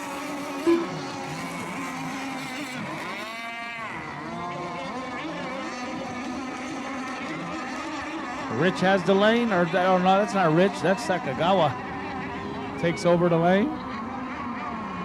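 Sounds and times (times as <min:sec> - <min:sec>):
racing boat engines whining: 0:00.0 - 0:15.0
short loud tone: 0:00.6 - 0:01.0.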